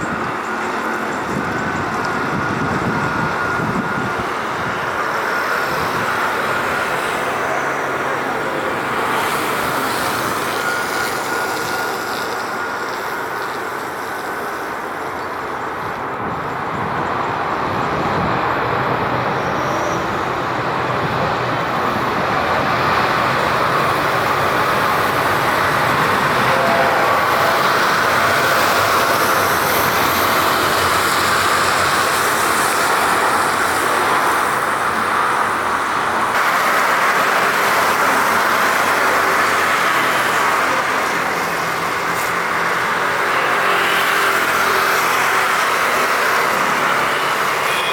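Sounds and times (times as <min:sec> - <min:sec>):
jet engines rushing: 0:00.0 - 0:47.9.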